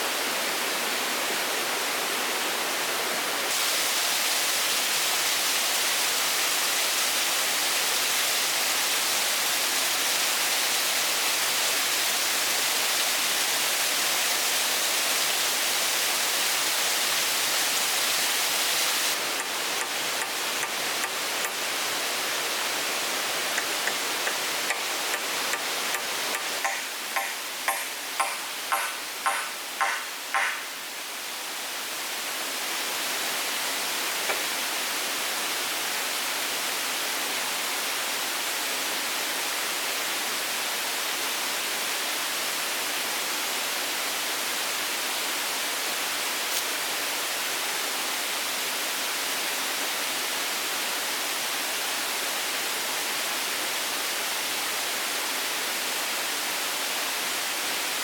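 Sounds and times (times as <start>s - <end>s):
sharp knocks: 23.6s - 30.7s.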